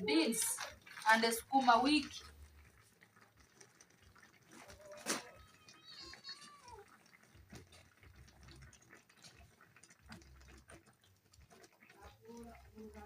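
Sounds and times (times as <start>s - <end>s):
cat meowing: 4.7s - 7.0s.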